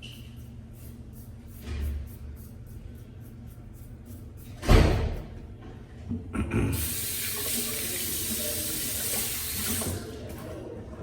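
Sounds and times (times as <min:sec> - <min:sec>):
sink tap running: 0:06.8 - 0:10.1.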